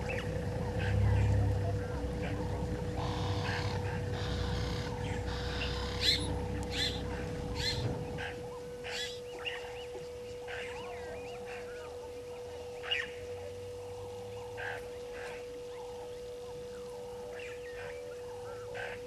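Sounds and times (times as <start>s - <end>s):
low rumble: 0.0s - 9.9s
faint hum: 0.0s - 19.0s
harsh bird calls: 0.0s - 19.0s.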